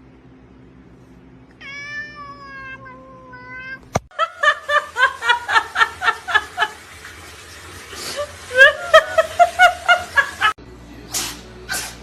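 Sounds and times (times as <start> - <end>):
cat meowing: 1.6 - 3.9.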